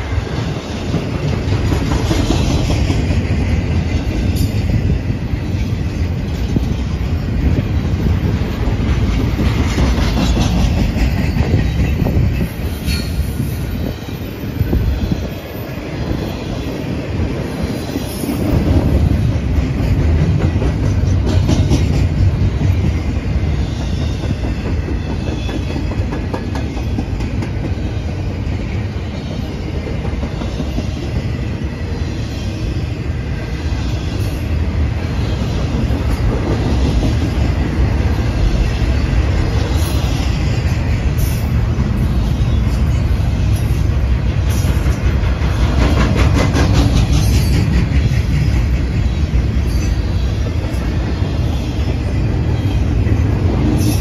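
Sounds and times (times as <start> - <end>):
train cars rumbling past: 0.0 - 54.0.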